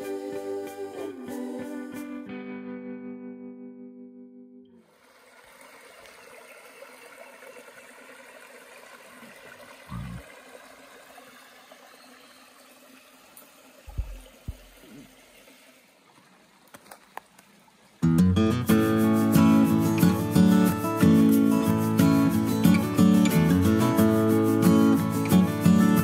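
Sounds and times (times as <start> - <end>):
creek water running: 4.8 - 26.0
low thumps: 13.9 - 14.8.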